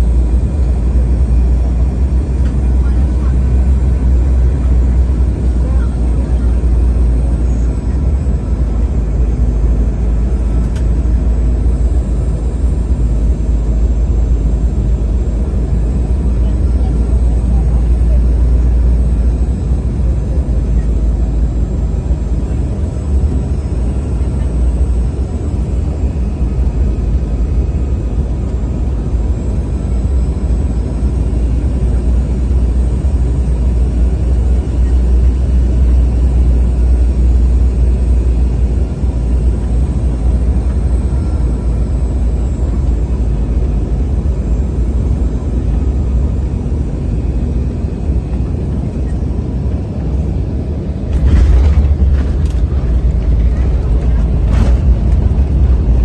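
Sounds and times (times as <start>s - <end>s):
airliner engines and rushing air: 0.0s - 56.0s.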